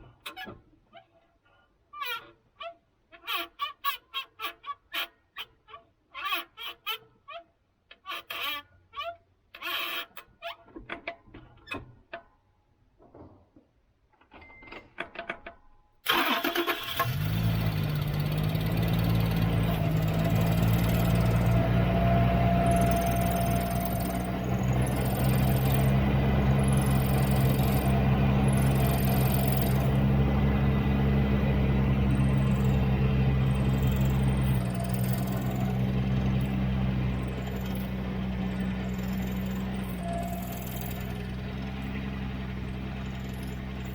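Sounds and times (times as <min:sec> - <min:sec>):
engine starting and idling: 0:16.0 - 0:43.9.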